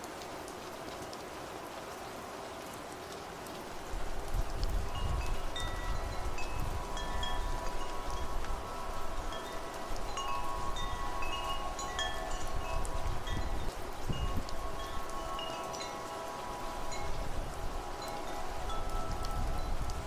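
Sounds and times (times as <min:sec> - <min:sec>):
low wind rumble: 0:03.8 - 0:20.0
wind chimes ringing: 0:04.8 - 0:20.0.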